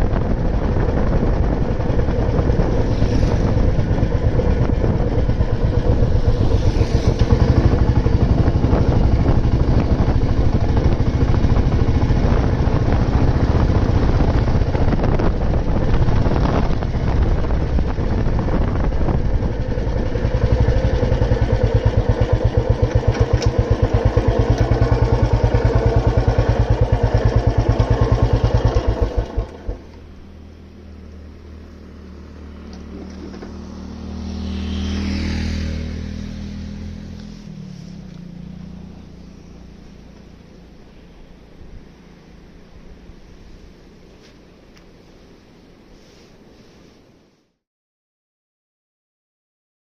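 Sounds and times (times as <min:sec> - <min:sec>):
motorcycle engine thumping: 0:00.0 - 0:30.1.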